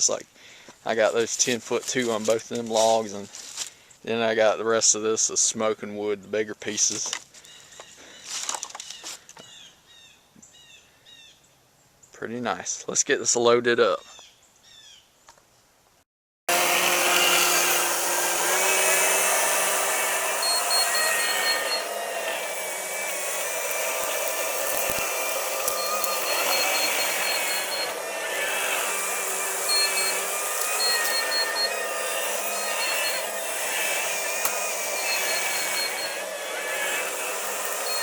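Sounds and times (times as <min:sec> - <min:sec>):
diesel engine and hydraulics whining: 0:16.5 - 0:38.0
high beeping: 0:16.6 - 0:38.0.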